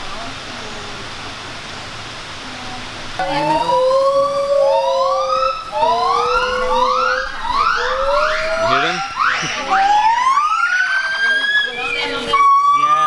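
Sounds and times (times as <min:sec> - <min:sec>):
steady hiss: 0:00.0 - 0:13.0
gibbons whooping hoots: 0:03.2 - 0:13.0.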